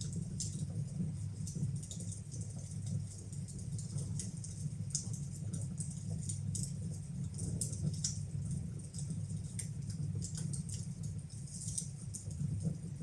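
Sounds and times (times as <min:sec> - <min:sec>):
fire crackling in a fireplace: 0:00.0 - 0:13.0.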